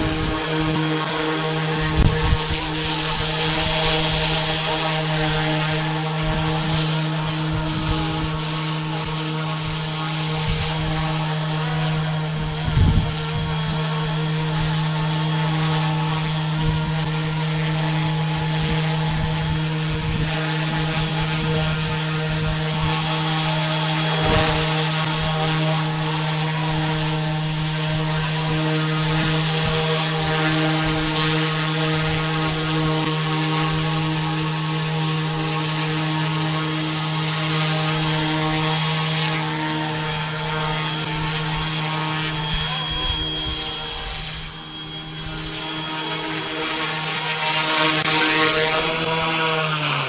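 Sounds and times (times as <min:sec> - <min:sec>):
wind buffeting microphone: 0:00.0 - 0:34.2
model helicopter motor whine: 0:00.0 - 0:50.0.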